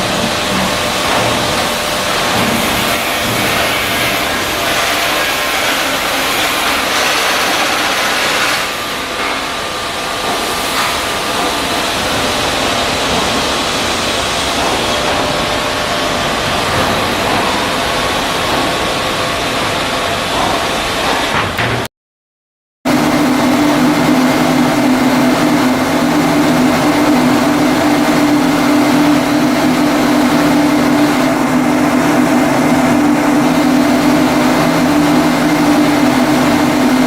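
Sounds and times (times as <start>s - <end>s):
loud machinery hiss: 0.0s - 21.3s.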